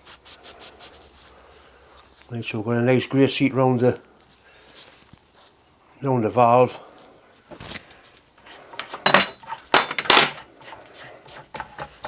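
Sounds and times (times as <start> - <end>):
small metal parts clinking: 8.7 - 10.5.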